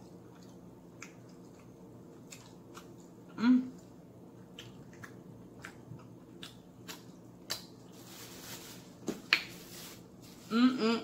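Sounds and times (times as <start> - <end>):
mouth chewing sounds: 0.0 - 7.8.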